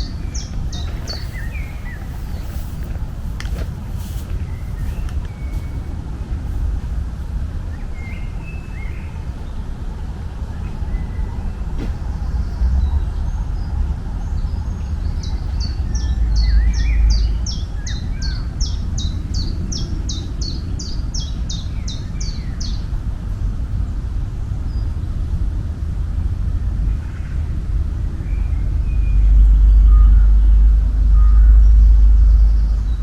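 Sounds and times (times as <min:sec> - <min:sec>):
soft bird chirps: 0:00.0 - 0:07.0
songbird singing: 0:00.0 - 0:25.4, 0:26.8 - 0:33.0
steady low rumble: 0:00.0 - 0:33.0.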